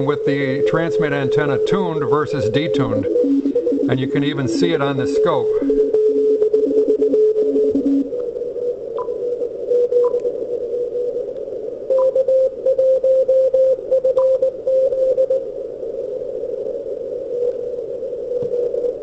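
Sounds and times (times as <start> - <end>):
morse code tone: 0.0 - 10.3, 11.9 - 15.4
radio band noise hiss: 0.0 - 19.0.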